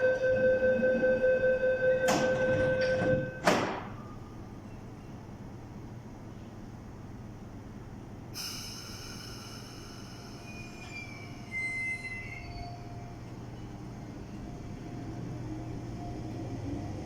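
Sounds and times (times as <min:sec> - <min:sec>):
train wheels squealing on rails: 0:08.4 - 0:14.5
shrill wavering tones: 0:10.1 - 0:13.1.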